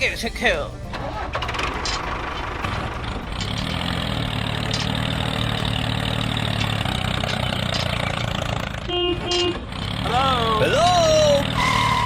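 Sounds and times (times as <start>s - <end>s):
engine idling: 0.1s - 12.0s.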